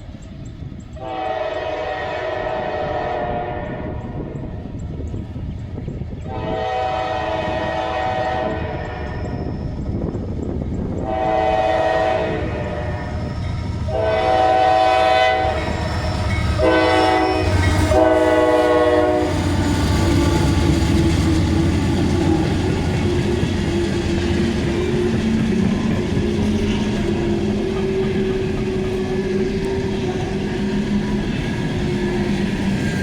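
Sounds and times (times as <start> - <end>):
locomotive horn blasts: 1.0 - 4.1, 6.3 - 9.2, 11.0 - 13.2, 13.9 - 19.5
train clattering on rails: 3.9 - 33.0
locomotive engine drone: 8.2 - 33.0.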